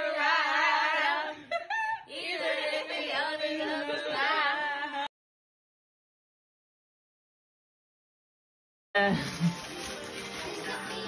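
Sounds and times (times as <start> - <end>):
group of voices singing: 0.0 - 5.1.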